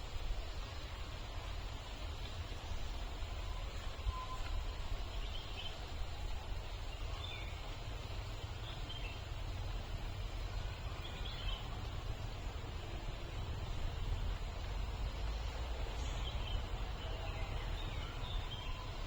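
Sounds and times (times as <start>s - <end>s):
low rumble and hiss: 0.0s - 19.0s
faint bird chirps: 2.7s - 7.8s, 15.3s - 19.0s.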